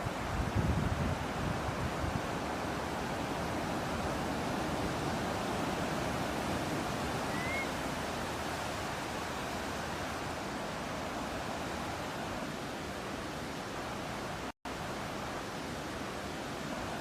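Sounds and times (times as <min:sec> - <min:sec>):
ocean waves and breeze: 0:00.0 - 0:17.0
faint rising bird chirp: 0:07.2 - 0:07.8.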